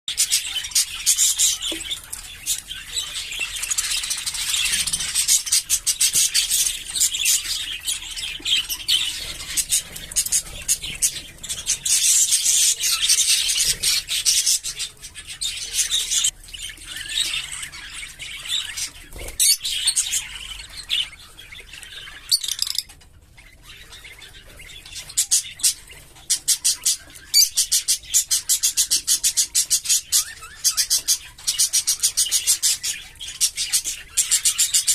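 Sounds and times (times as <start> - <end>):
budgerigars chattering and chirping: 0.1 - 34.9.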